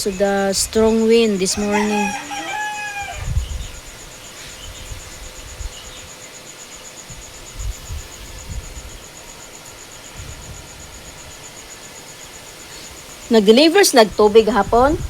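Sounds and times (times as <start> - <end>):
wind buffeting microphone: 0.0 - 6.2, 7.0 - 15.0
pulsing insect trill: 0.0 - 15.0
rooster crowing: 1.4 - 3.6.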